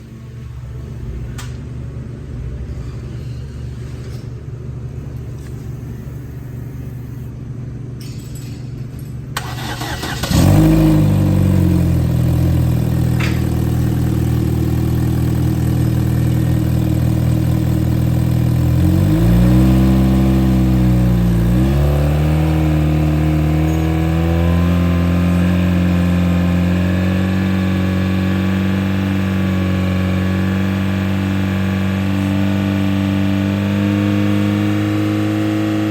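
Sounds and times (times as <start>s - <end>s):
car engine starting and revving: 9.4s - 35.9s.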